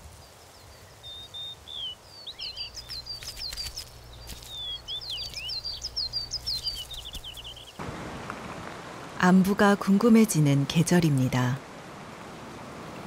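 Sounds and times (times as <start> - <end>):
birds chirping and trilling: 0.1 - 7.8.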